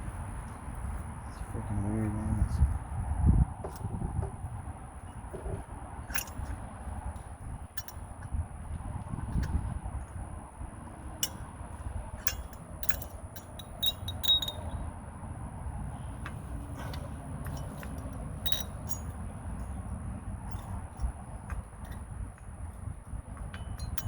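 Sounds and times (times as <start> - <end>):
steady low rumble: 0.0 - 24.0
light metallic clinks and taps: 5.1 - 8.3, 11.2 - 14.9, 16.2 - 24.0.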